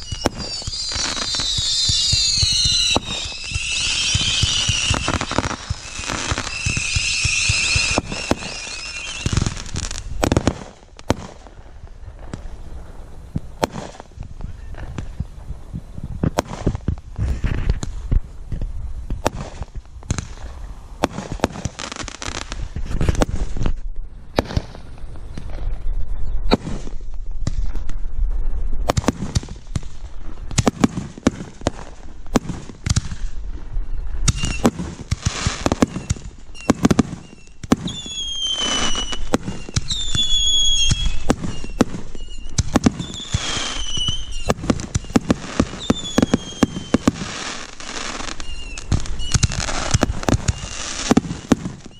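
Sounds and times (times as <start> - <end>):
falling firework whistles: 0.0 - 11.2, 33.9 - 51.9
fireworks bangs and crackling: 0.0 - 51.9.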